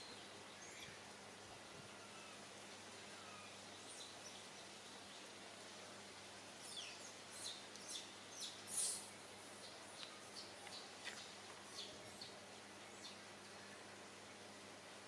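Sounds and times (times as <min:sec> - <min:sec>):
small birds chirping: 0:00.0 - 0:01.0, 0:03.0 - 0:05.4, 0:06.6 - 0:14.0
faint outdoor background noise: 0:00.0 - 0:15.0.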